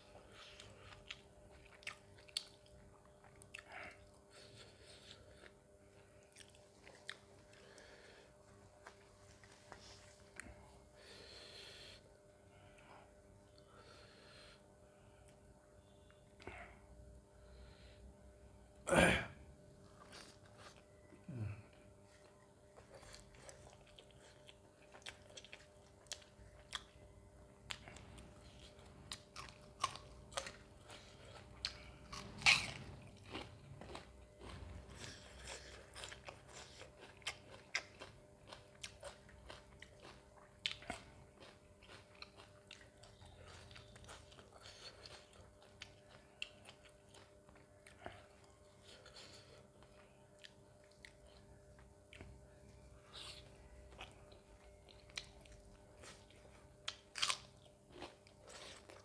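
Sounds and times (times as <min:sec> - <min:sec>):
person chewing and biting: 0:00.2 - 0:04.2, 0:06.2 - 0:08.0, 0:22.2 - 0:59.0.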